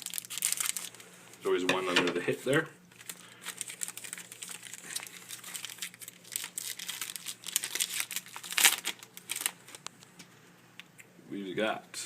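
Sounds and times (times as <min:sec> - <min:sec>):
cards and wrapper crinkling: 0:00.0 - 0:01.1, 0:02.9 - 0:10.1.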